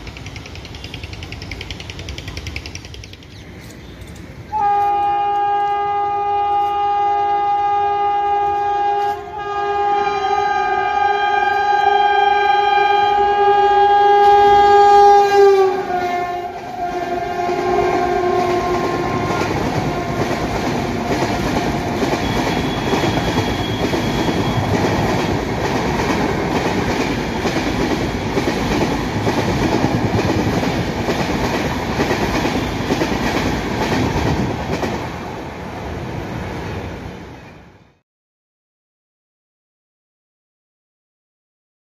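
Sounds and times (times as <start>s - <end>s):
train coaches clickety-clack: 0.0s - 7.7s, 8.3s - 9.4s, 15.8s - 36.8s
two-tone locomotive horn: 4.5s - 24.8s.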